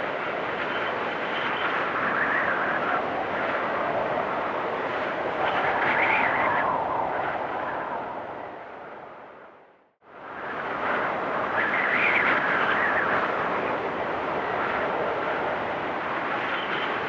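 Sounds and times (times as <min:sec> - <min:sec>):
blizzard wind gusting: 0:00.0 - 0:17.0.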